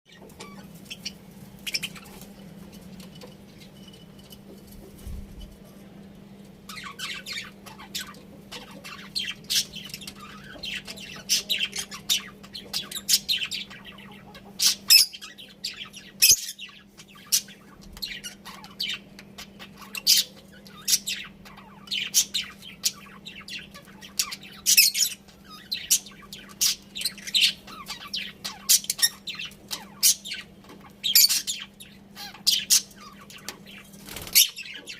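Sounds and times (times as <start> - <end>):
budgerigars chirping and squawking: 0.1 - 2.4, 6.7 - 34.9.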